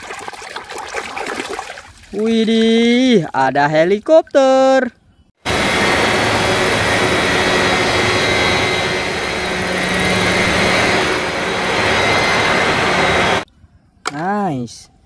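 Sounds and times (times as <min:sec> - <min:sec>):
thin high whine: 0:05.4 - 0:13.4
model helicopter rotor whir: 0:05.5 - 0:13.4.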